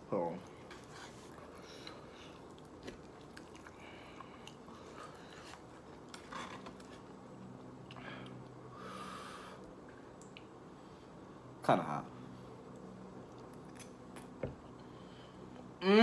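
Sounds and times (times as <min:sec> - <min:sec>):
person chewing: 0:00.4 - 0:08.6.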